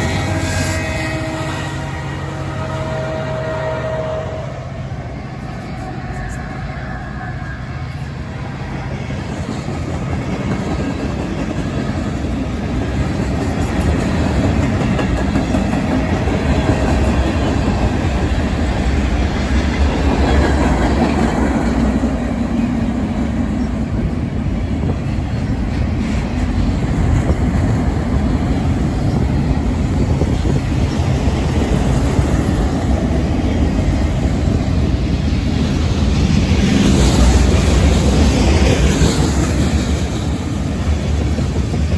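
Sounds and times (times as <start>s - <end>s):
freight train passing: 0.0s - 41.9s
steel wheels rolling on rails: 4.8s - 41.9s.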